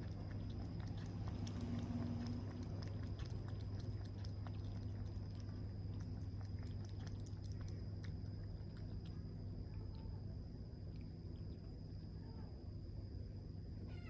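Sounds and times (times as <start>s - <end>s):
kitten chewing clicks: 0.0s - 10.1s
steady low hum: 0.0s - 14.0s.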